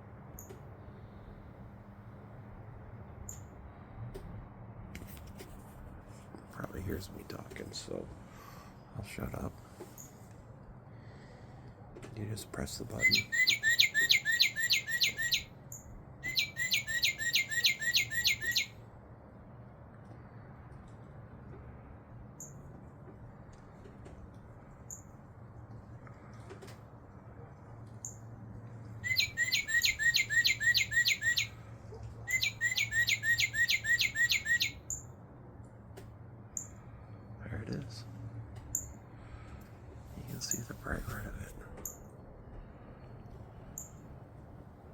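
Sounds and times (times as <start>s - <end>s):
recorded bird song from toy: 3.2s - 3.5s, 12.6s - 18.8s, 29.0s - 31.6s, 32.3s - 35.1s, 43.8s - 44.0s.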